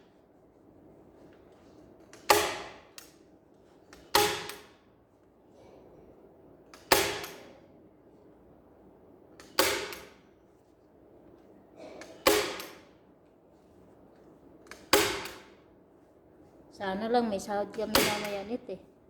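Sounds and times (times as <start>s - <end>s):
staple gun firing: 2.1s - 3.1s, 6.8s - 7.5s, 9.4s - 10.2s, 12.1s - 12.9s, 14.7s - 15.5s, 17.9s - 18.4s.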